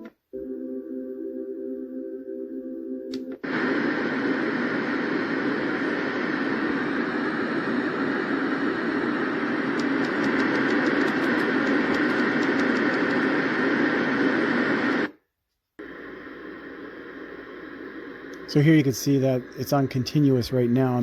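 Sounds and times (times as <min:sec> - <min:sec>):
quiet hiss: 0:10.9 - 0:21.0.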